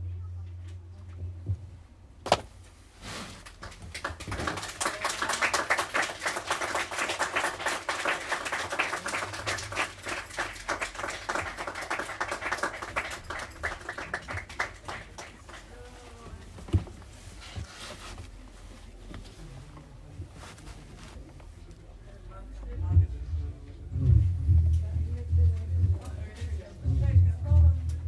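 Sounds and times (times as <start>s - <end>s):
audience applauding: 3.4s - 15.9s.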